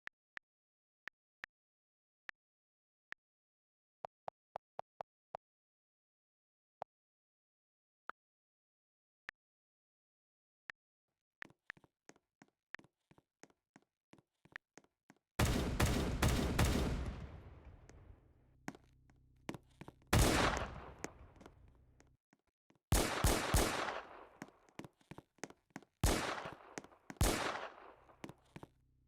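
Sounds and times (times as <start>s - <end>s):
rapid sharp bangs: 15.4s - 18.1s, 20.2s - 21.5s, 22.9s - 24.4s, 26.0s - 28.1s.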